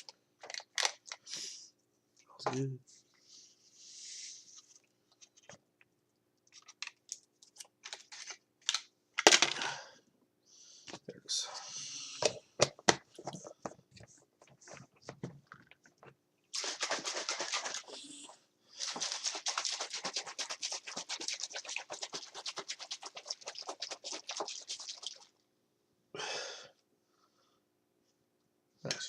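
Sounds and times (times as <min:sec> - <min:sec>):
fast rhythmic stirring strokes: 0:16.5 - 0:25.4
drink being mixed in a cup: 0:16.6 - 0:25.4.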